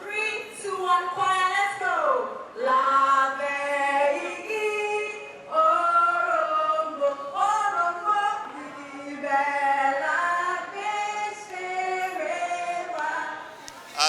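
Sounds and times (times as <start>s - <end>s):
group singing unaccompanied: 13.5s - 14.0s.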